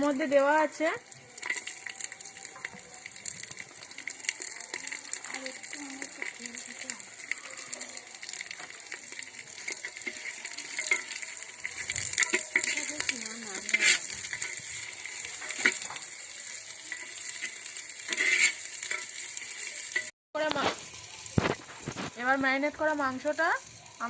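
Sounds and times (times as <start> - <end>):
spices and onion sizzling in oil: 0.0 - 24.0
spoon scraping clay pot: 9.5 - 16.1, 16.8 - 20.1.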